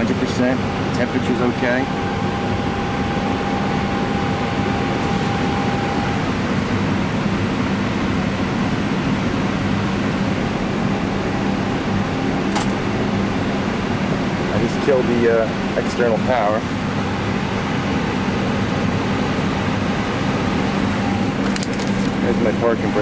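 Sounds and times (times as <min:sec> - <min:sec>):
rushing hum of fans: 0:00.0 - 0:23.0
sharp click: 0:12.5 - 0:12.8.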